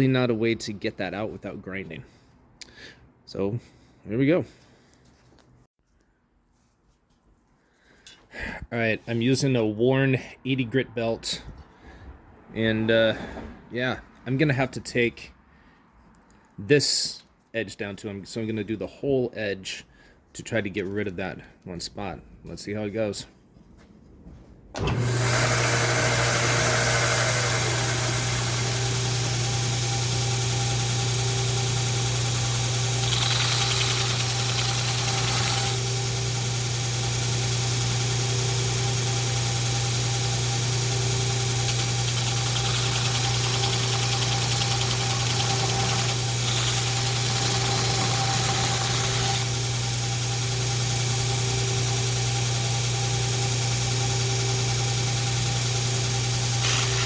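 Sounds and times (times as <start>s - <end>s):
belt grinder motor hum: 24.8s - 57.0s.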